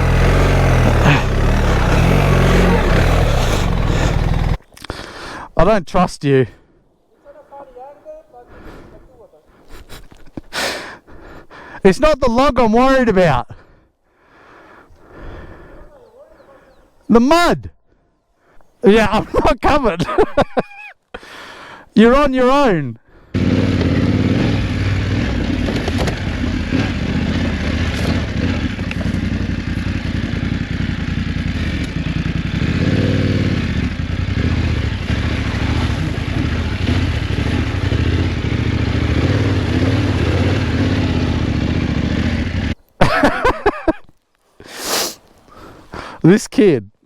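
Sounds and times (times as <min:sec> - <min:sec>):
motorcycle engine running: 0:00.0 - 0:04.6, 0:23.3 - 0:42.8.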